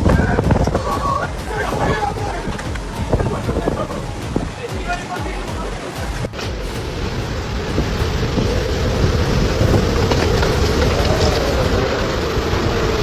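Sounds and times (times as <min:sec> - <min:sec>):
storm wind roaring: 0:00.0 - 0:13.0.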